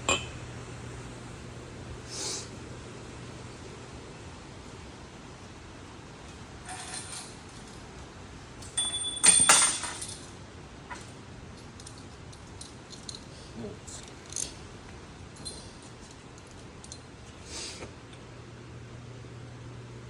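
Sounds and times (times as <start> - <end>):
metal objects clinking: 6.6 - 7.8, 8.6 - 10.3
ringing metallic clank: 8.8 - 10.2.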